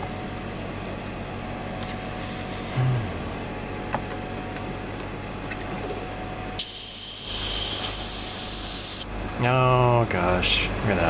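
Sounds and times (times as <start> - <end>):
low steady hum: 0.0 - 11.0
airbrush spraying hiss: 6.6 - 9.0.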